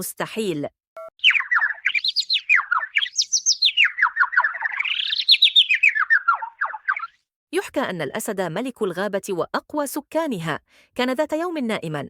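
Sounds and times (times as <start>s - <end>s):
birds chirping: 1.2s - 7.2s.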